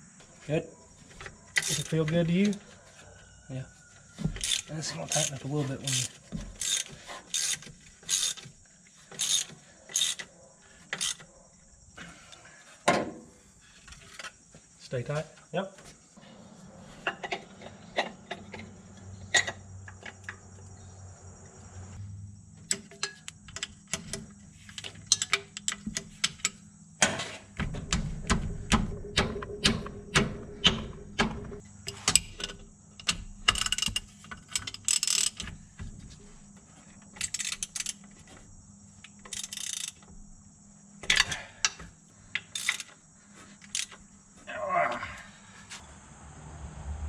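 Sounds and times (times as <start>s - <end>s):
socket ratchet clicking: 1.6s - 1.9s, 4.4s - 8.5s, 9.1s - 10.3s, 10.9s - 11.2s, 32.1s - 35.5s, 37.2s - 38.0s, 39.1s - 40.0s, 42.4s - 43.0s, 43.6s - 44.0s.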